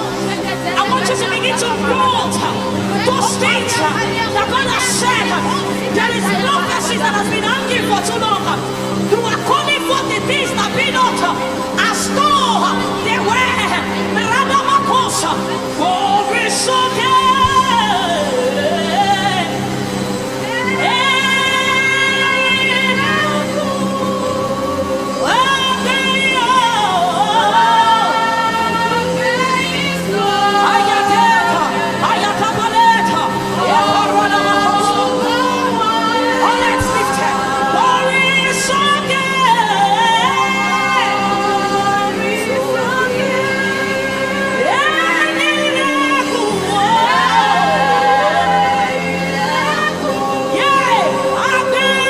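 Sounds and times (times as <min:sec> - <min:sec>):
held chords: 0:00.0 - 0:52.0
sustained keyboard accompaniment: 0:00.0 - 0:52.0
woman singing wordless melody: 0:00.0 - 0:52.0.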